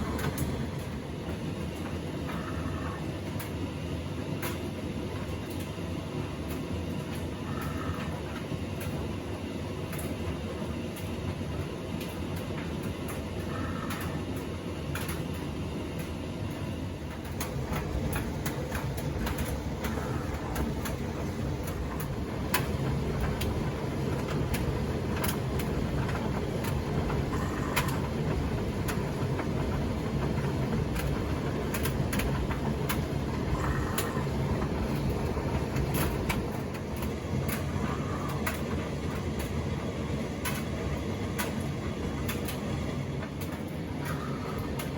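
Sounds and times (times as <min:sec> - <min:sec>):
tumble dryer drum rumbling: 0:00.0 - 0:44.9.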